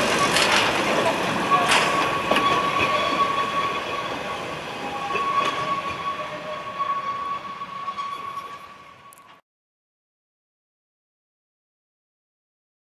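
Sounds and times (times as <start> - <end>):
rail clicks: 0.0 - 9.4
train rumbling on rails: 0.0 - 9.4
wheels squealing: 0.0 - 9.4.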